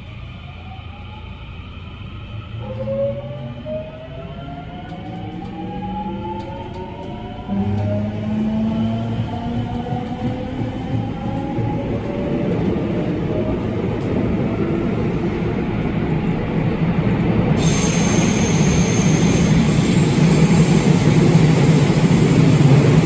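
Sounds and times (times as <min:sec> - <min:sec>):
train wheels rumbling on rails: 0:02.2 - 0:23.0
sharp high hiss: 0:17.6 - 0:20.7.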